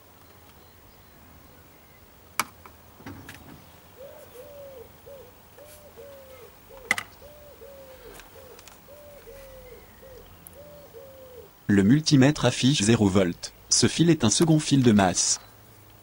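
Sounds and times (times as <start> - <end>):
bird calling: 3.0 - 11.6.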